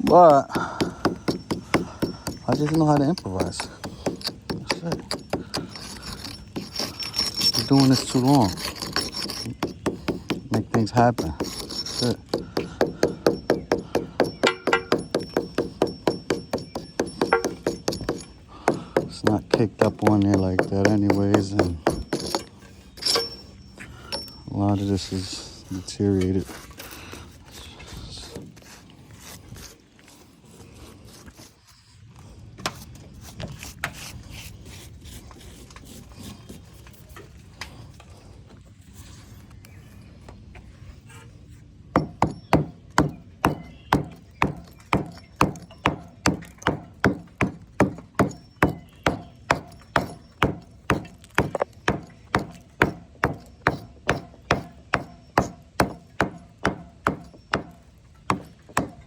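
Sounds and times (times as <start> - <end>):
hammer striking brick: 0.0 - 23.4, 42.0 - 59.0.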